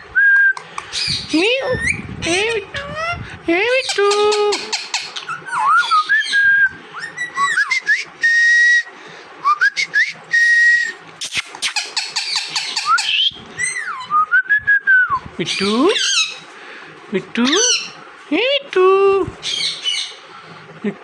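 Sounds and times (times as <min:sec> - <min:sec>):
parrot whistling: 0:03.9 - 0:08.9, 0:09.5 - 0:16.4.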